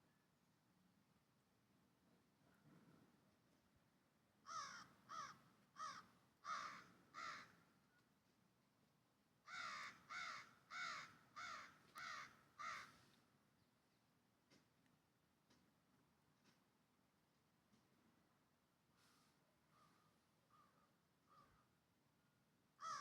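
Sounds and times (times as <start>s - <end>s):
bird giving harsh calls: 9.5s - 12.9s.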